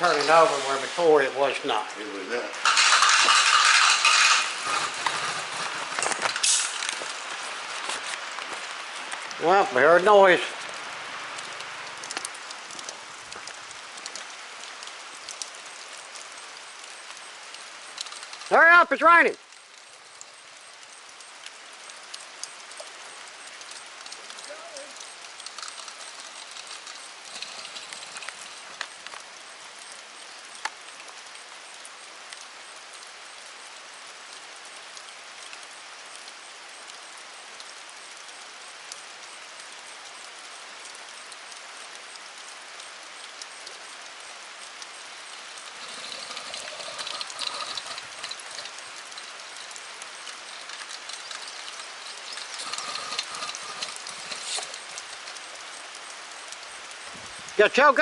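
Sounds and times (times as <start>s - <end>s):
steady rain falling: 0.0s - 58.0s
sharp drop ticks: 44.9s - 56.2s.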